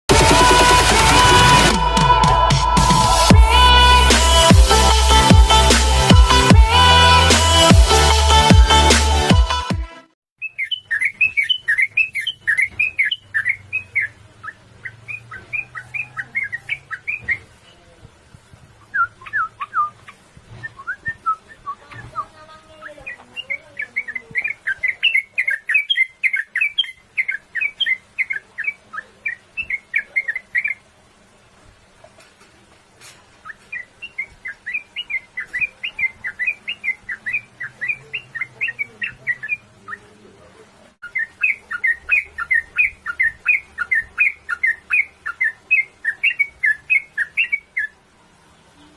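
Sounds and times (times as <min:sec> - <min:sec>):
bulbul chirping song: 0:10.4 - 0:17.6, 0:18.8 - 0:30.9, 0:33.4 - 0:48.9.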